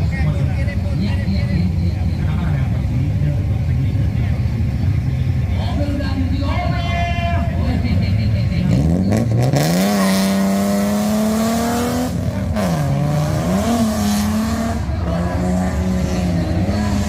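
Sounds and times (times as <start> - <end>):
car engine revving hard: 8.6 - 17.0.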